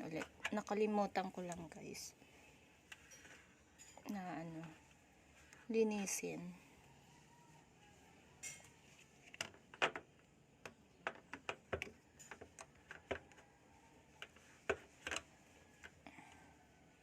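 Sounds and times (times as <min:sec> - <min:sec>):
plastic filter clicking and tapping: 0:09.3 - 0:13.4, 0:14.2 - 0:16.0.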